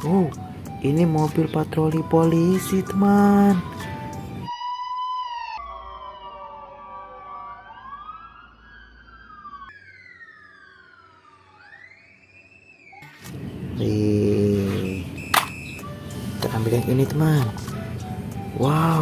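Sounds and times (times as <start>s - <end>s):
toy police siren wailing: 4.5s - 13.3s.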